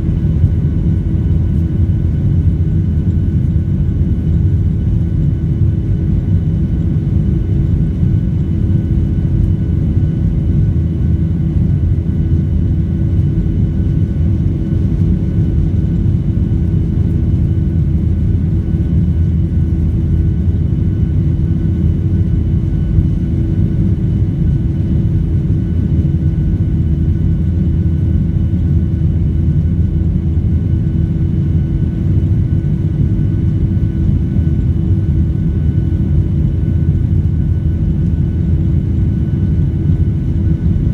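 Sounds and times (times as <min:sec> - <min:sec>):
aircraft cabin rumble: 0:00.0 - 0:40.9.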